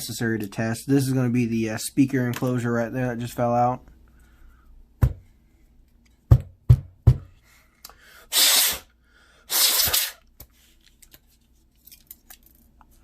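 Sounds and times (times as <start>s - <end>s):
hissing rushes of air: 8.3s - 8.9s, 9.5s - 10.2s.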